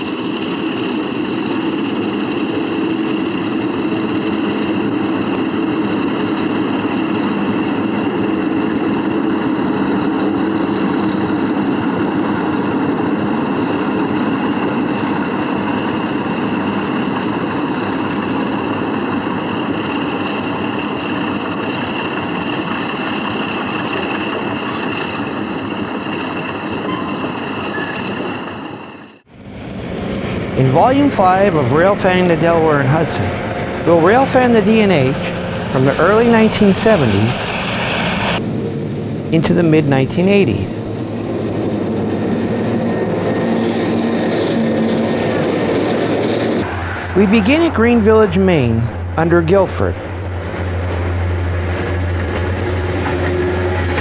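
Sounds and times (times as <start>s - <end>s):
diesel locomotive engine drone: 29.3s - 38.4s, 46.6s - 47.4s, 48.8s - 54.0s.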